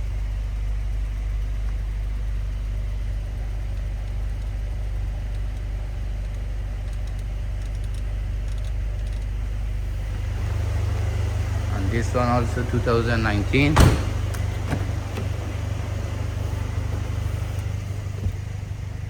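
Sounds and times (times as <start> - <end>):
car engine idling: 0.0 - 19.0
faint ticks: 3.7 - 9.4.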